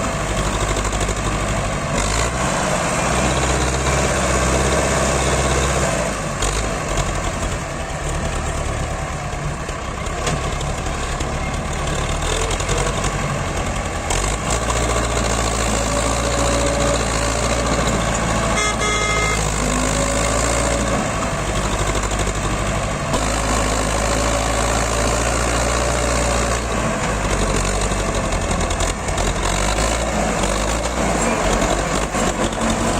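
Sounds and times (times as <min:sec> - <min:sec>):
tractor diesel engine running: 0:00.0 - 0:32.9
short high-pitched tone: 0:18.6 - 0:19.5.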